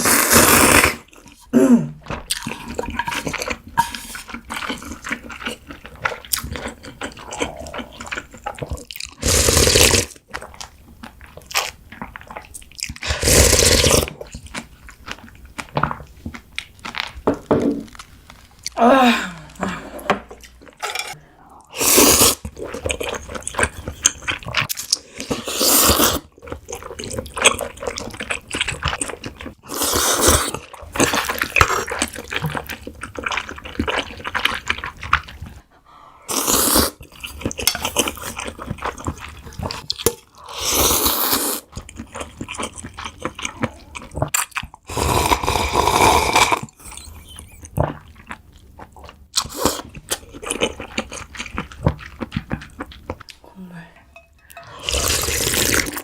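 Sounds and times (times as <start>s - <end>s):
slurping noodles and broth: 0.0s - 10.5s, 13.0s - 14.4s, 20.0s - 44.2s, 44.8s - 48.3s, 48.9s - 53.4s, 54.5s - 56.0s
chewing: 1.0s - 17.2s, 22.4s - 35.8s, 41.5s - 56.0s.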